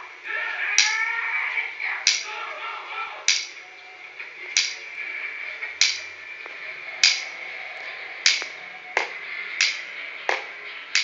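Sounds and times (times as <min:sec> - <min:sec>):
sharp snapping clicks: 0:04.6 - 0:04.8, 0:05.8 - 0:06.1, 0:07.0 - 0:07.3, 0:08.2 - 0:11.0.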